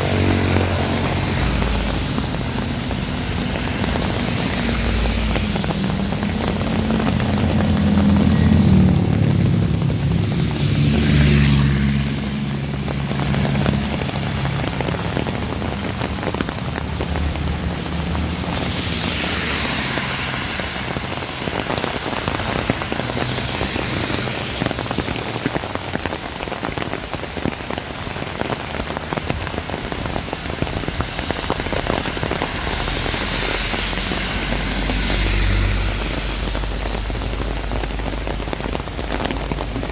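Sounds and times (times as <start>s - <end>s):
low rumble: 0.0s - 24.8s
heavy rain falling: 0.0s - 39.9s.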